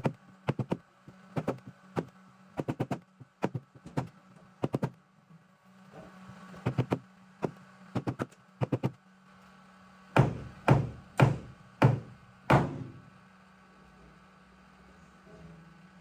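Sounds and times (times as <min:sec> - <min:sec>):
heavy ringing knocks on metal: 0:10.2 - 0:13.0.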